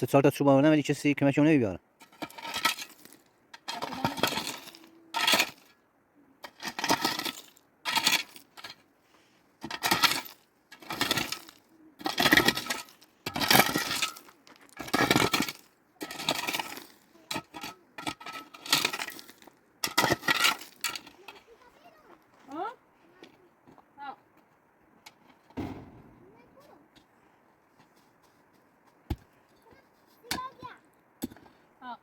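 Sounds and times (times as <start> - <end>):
scraping clinking strokes: 2.0 - 5.8, 6.4 - 21.6.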